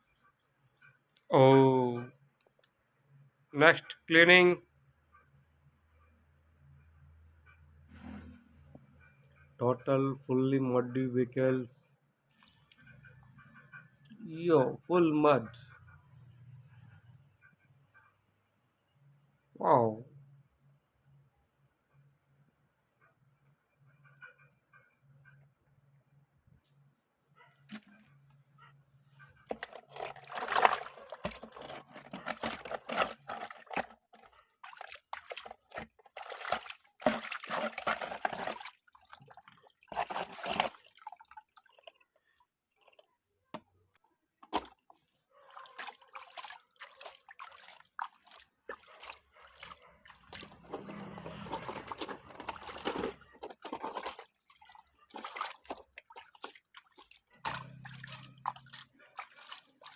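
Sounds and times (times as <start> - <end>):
water sloshing and splashing: 12.3 - 13.2, 29.2 - 43.7, 44.4 - 59.9.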